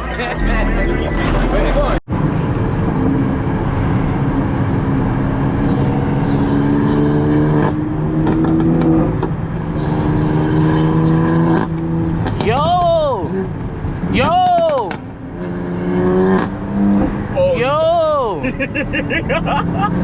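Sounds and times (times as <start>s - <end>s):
car engine accelerating: 0.0s - 12.5s, 14.9s - 17.4s.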